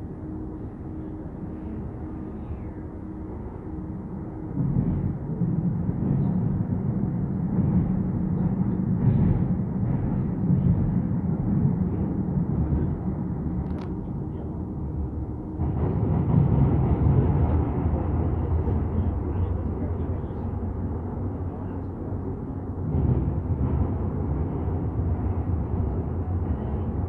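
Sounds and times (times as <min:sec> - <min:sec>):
train wheels rumbling on track: 0:00.0 - 0:27.0.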